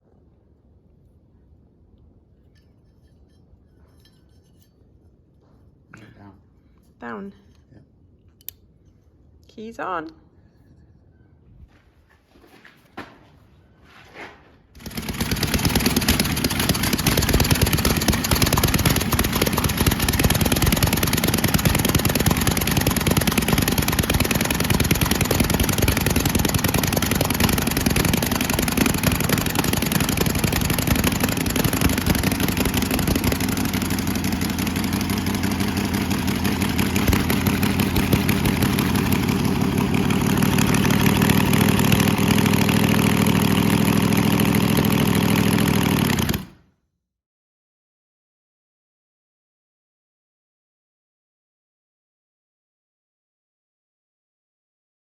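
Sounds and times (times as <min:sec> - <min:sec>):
car engine starting and running: 0:14.9 - 0:46.6.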